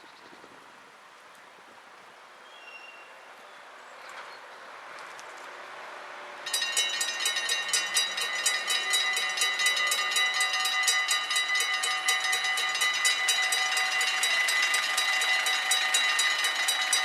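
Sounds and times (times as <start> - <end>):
approaching train rumble: 5.9 - 17.0
level crossing warning bell: 6.4 - 17.0.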